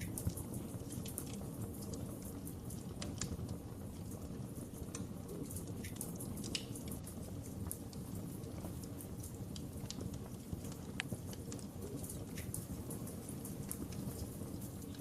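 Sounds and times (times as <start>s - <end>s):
fire pops and snaps: 0.0s - 15.0s
low rumble of flames: 0.0s - 15.0s.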